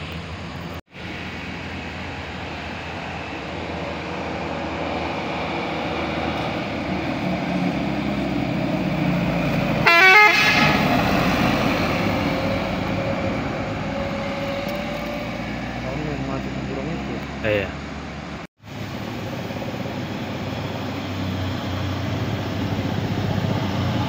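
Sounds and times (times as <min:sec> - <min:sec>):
heavy vehicle passing: 0:00.0 - 0:24.0
short horn toot: 0:09.9 - 0:10.8.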